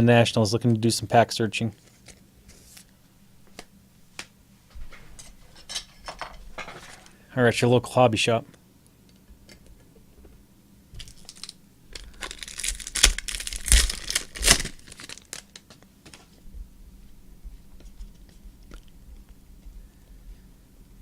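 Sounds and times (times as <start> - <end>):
plastic wrapper tearing and crinkling: 11.0 - 15.7.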